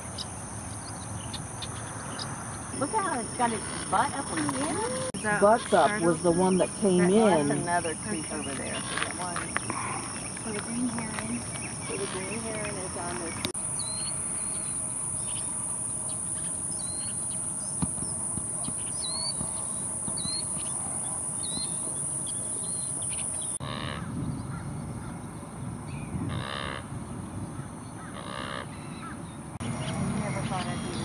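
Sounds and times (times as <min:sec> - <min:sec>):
loud bird calls: 0:00.0 - 0:26.9, 0:27.5 - 0:31.0
high bird chirps: 0:11.0 - 0:15.5, 0:16.1 - 0:20.8, 0:21.4 - 0:23.6.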